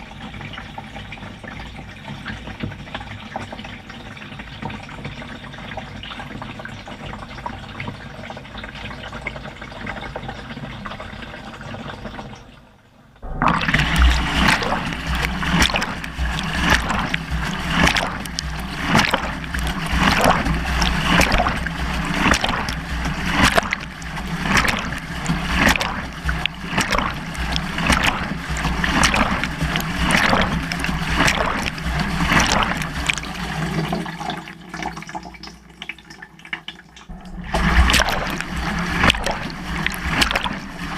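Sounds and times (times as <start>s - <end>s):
water sloshing in washing machine drum: 0.0s - 40.9s
water rushing: 13.2s - 35.8s, 37.1s - 40.9s.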